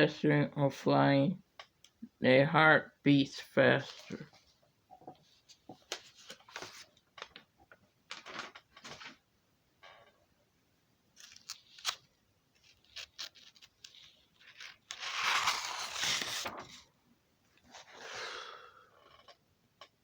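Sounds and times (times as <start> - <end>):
rustling scrapes: 12.6 - 16.9.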